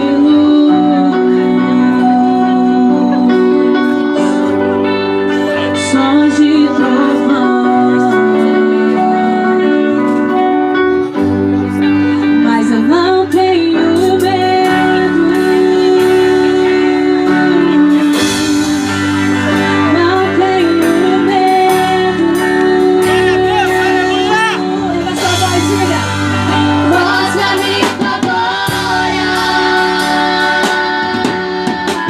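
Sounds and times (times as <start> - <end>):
guitar: 0.0 - 32.0
person singing melody: 0.0 - 32.0
bass line: 12.5 - 32.0.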